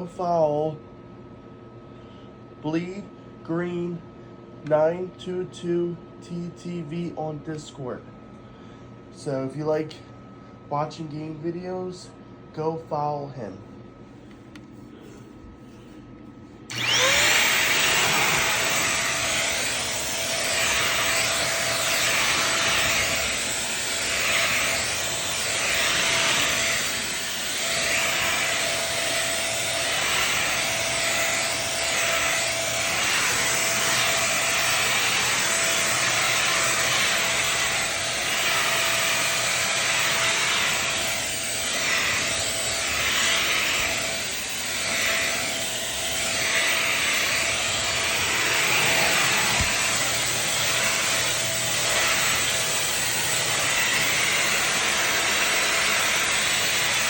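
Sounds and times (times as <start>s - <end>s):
vacuum motor whine: 16.7s - 57.0s
vacuum suction over carpet: 16.7s - 57.0s.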